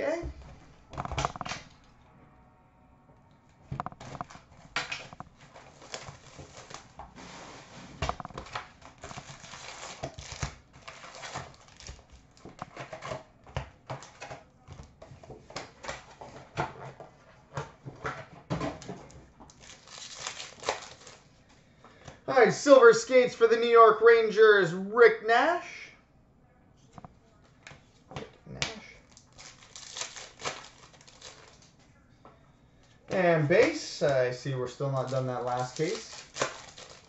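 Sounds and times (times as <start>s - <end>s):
wrappers crinkling and tearing: 4.2s - 7.0s, 8.2s - 13.2s, 19.5s - 21.3s, 28.9s - 31.8s, 33.6s - 37.0s.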